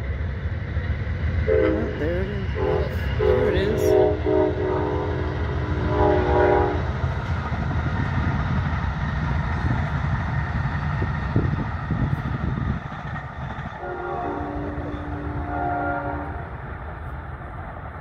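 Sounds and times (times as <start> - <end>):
train rumbling past: 0.0 - 18.0
train horn chord: 1.5 - 6.9, 13.8 - 16.7.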